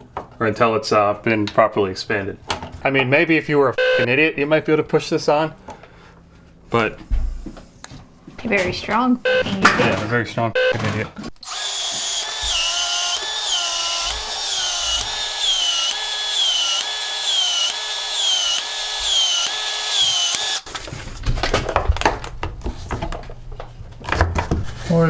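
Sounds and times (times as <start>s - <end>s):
expansion tool motor whining: 11.4s - 20.7s
handling clatter and knocks: 20.7s - 24.8s.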